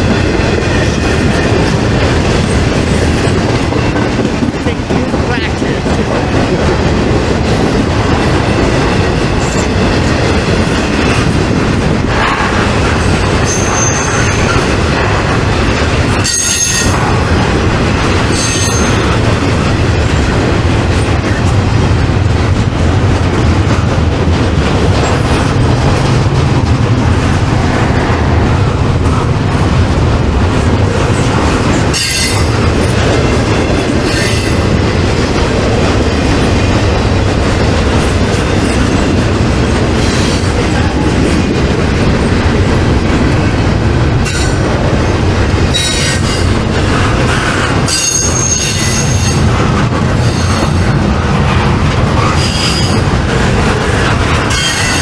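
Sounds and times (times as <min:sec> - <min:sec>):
freight train rumbling past: 0:00.0 - 0:55.0
high-pitched wheel squeals: 0:13.4 - 0:14.5.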